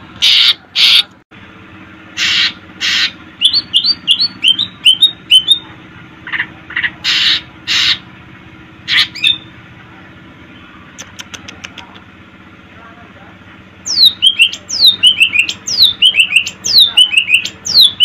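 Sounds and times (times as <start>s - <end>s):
harsh rasping bird notes: 2.1s - 5.6s, 6.2s - 8.1s
bird chirping: 2.3s - 5.7s, 13.8s - 18.0s.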